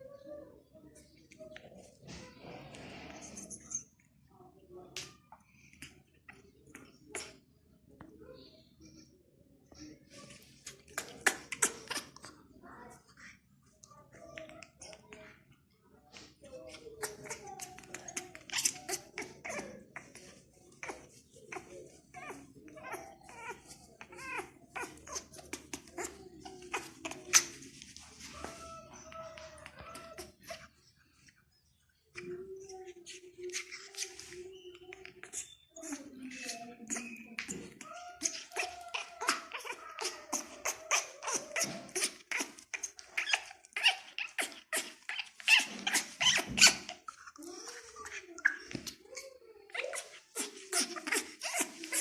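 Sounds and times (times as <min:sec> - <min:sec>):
parrot squeaky chirps and clicks: 0:16.6 - 0:20.2, 0:33.5 - 0:52.0.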